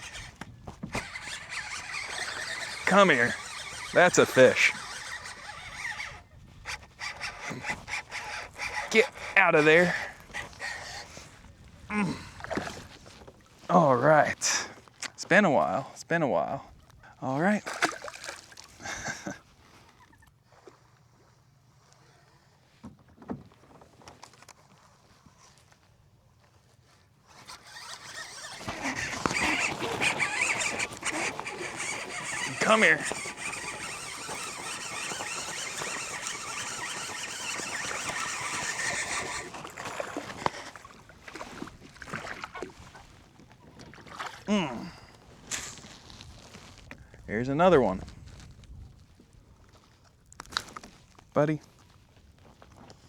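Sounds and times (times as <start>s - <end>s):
gear knocking: 0.0s - 11.2s, 27.3s - 40.9s
gear rustling: 0.0s - 11.5s, 27.1s - 43.3s
fishing reel whirring: 0.0s - 12.9s, 27.2s - 42.6s
small water splashes: 17.6s - 18.8s, 27.6s - 46.5s.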